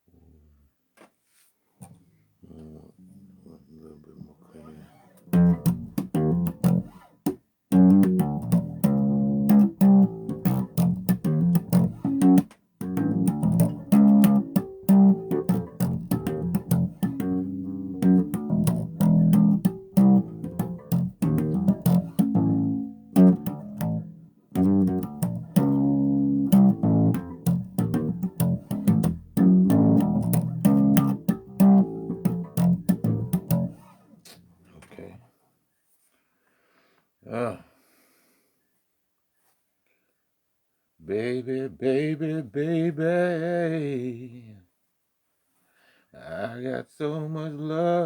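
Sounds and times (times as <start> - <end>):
bass guitar playing: 5.0 - 34.0.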